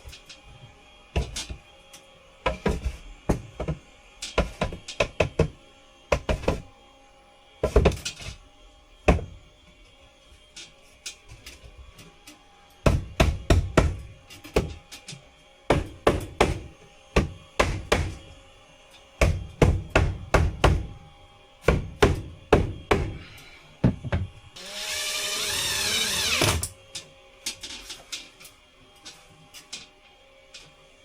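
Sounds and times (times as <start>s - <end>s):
power tool wavering pitch: 24.6s - 26.8s.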